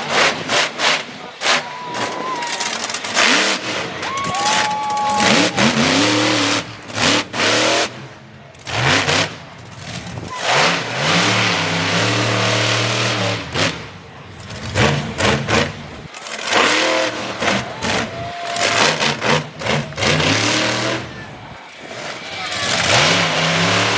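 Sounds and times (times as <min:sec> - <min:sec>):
truck engine revving hard: 0:00.0 - 0:23.9.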